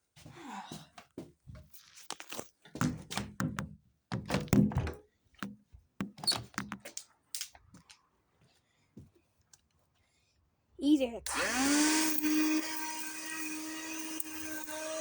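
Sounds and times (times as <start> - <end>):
hard plastic clicks and knocks: 2.8 - 7.0.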